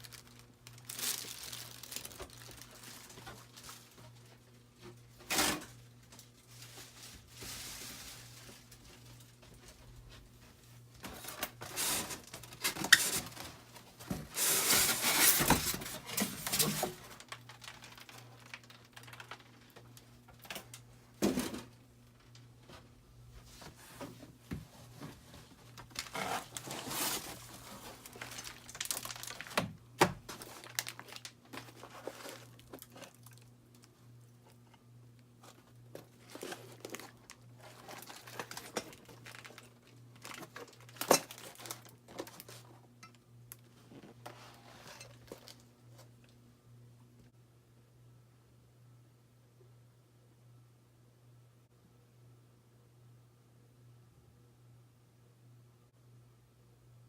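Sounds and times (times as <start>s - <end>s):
packing material crinkling: 0.0s - 9.7s, 11.0s - 20.8s, 25.6s - 33.9s, 35.4s - 42.7s.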